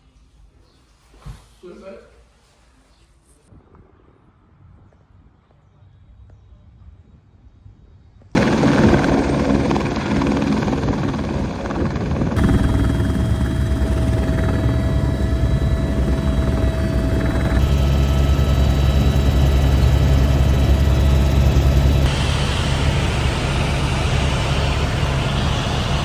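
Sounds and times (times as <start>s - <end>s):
helicopter engine and rotor: 8.4s - 26.0s.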